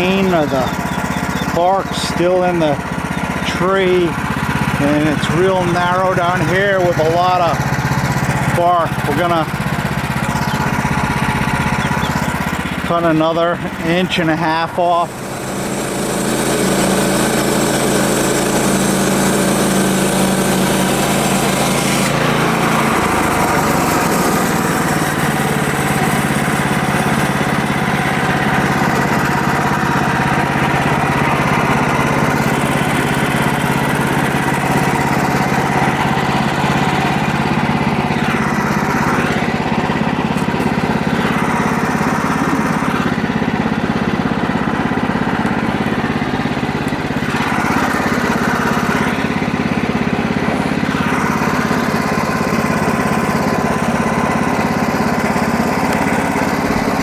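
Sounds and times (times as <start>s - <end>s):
saw cutting through log: 0.0s - 57.0s
sawmill engine running: 0.0s - 57.0s.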